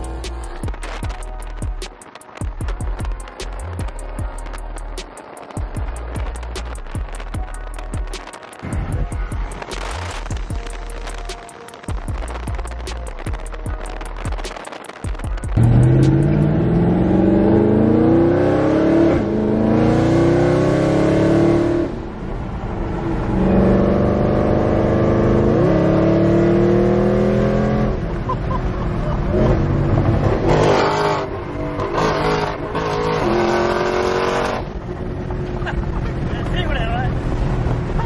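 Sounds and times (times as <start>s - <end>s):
car engine accelerating through gears: 15.6s - 36.5s.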